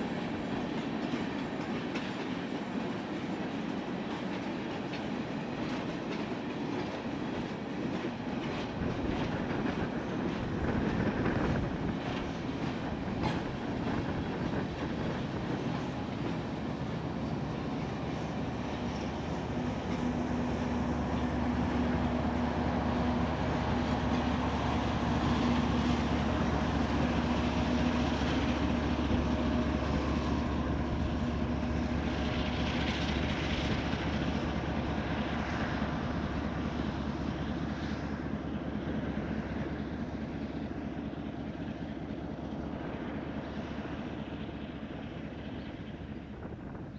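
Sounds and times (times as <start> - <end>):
train wheels clicking over rail joints: 0.2 - 38.3.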